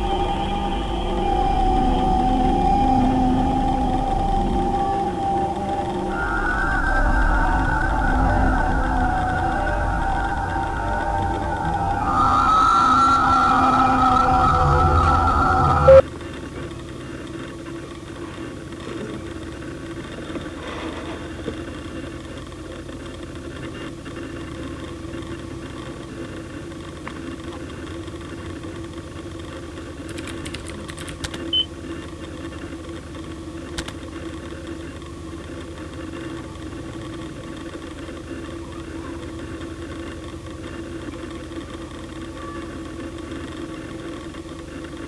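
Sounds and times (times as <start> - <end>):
faint held tone: 0.0 - 16.0
low hum: 0.0 - 16.0.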